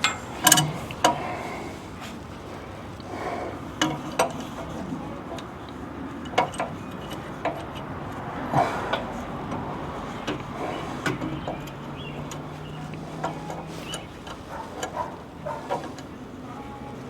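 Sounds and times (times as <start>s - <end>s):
hand tools clinking on metal: 0.0s - 1.6s, 6.2s - 16.9s.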